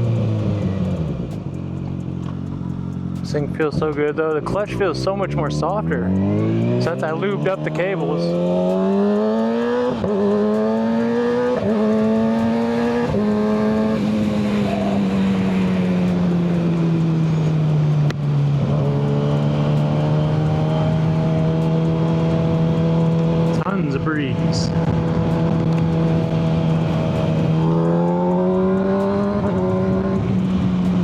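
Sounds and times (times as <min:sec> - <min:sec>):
motorcycle engine revving through gears: 0:00.0 - 0:31.0
wind noise from riding: 0:11.2 - 0:31.0.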